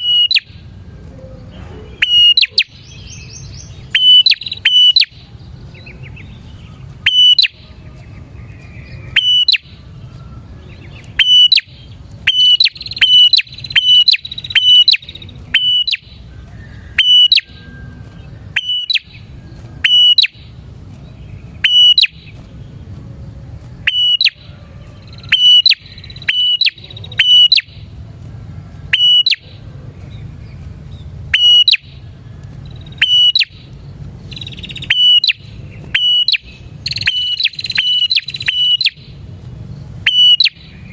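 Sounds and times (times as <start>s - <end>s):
bird calling sharply: 0.0s - 0.7s, 1.4s - 7.8s, 8.6s - 9.8s, 10.8s - 17.7s, 18.5s - 20.6s, 21.6s - 22.4s, 23.8s - 27.9s, 28.9s - 29.6s, 31.3s - 32.0s, 32.8s - 33.7s, 34.3s - 39.2s, 40.0s - 40.9s.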